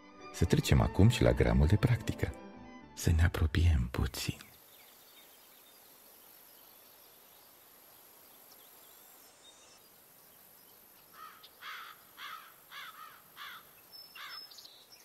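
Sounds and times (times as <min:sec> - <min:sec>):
faint outdoor hiss: 0:03.0 - 0:15.0
bird cawing: 0:11.1 - 0:14.6.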